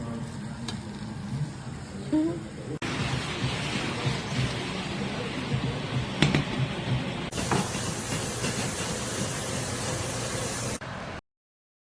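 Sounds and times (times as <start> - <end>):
food sizzling in a wok: 2.8 - 4.8, 7.3 - 10.8.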